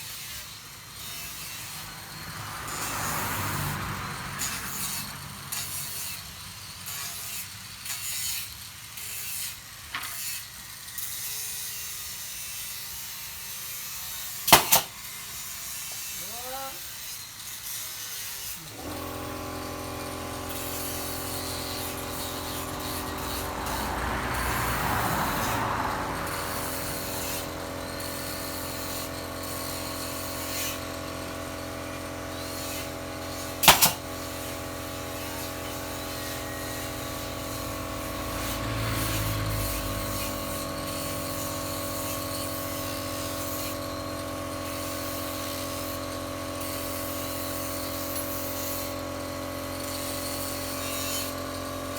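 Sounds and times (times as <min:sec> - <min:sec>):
electric power tool cutting wood: 0:00.0 - 0:51.9
sharp loud click: 0:14.5 - 0:14.9, 0:33.6 - 0:34.0.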